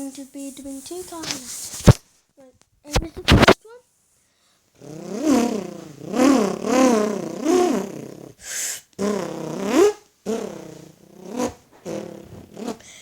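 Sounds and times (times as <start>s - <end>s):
breathy hiss: 0.0s - 1.9s, 3.7s - 4.8s, 7.0s - 9.0s
person imitating engine revving: 4.8s - 8.4s, 9.0s - 12.8s.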